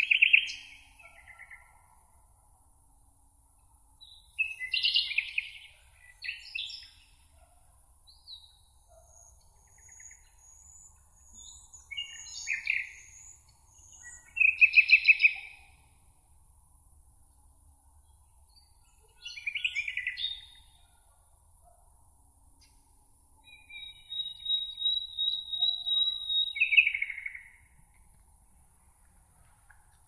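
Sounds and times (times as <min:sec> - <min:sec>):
songbirds singing: 0:00.0 - 0:02.0, 0:04.0 - 0:16.0, 0:18.0 - 0:21.8, 0:23.4 - 0:28.1.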